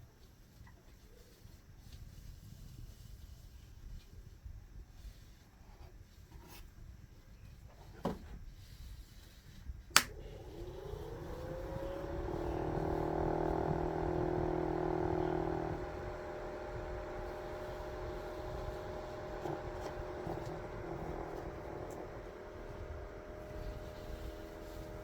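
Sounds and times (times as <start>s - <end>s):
small electric fan motor whine: 0.0s - 25.0s
switch click: 10.0s - 10.2s.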